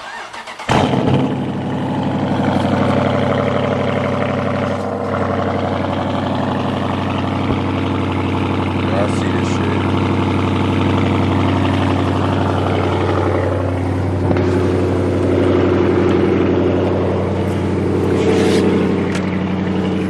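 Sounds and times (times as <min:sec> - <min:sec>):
starter cranking: 0:00.0 - 0:01.3
car engine starting and idling: 0:00.0 - 0:20.0.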